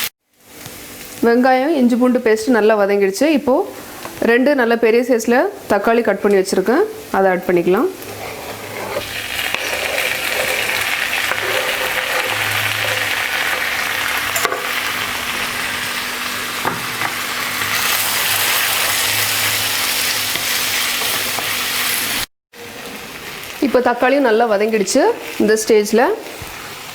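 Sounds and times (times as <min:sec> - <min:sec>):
food sizzling in oil: 0:05.4 - 0:26.9.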